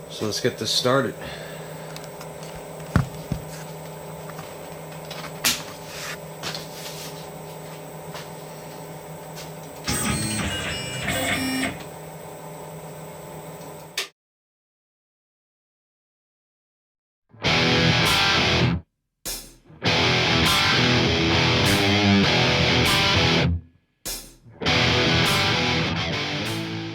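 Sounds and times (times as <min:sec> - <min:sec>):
machine hum: 0:00.0 - 0:14.0
machine whining tones: 0:09.6 - 0:13.9.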